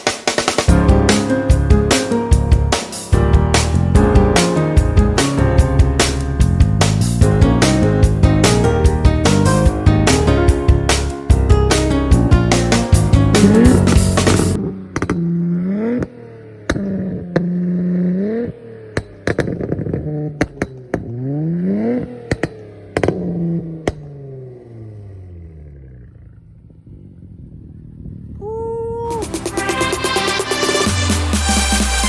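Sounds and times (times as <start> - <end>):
exhaust cracks: 0.0 - 28.4
car engine revving: 10.9 - 28.3.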